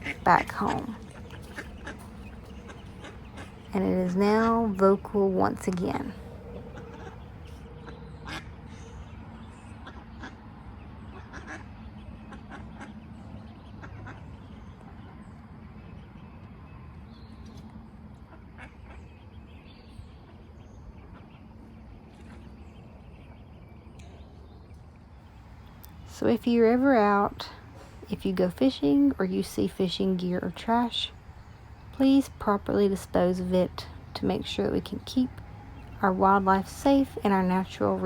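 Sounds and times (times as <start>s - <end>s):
ducks calling: 0.0s - 8.8s, 11.1s - 14.4s
steady background noise: 0.0s - 38.0s.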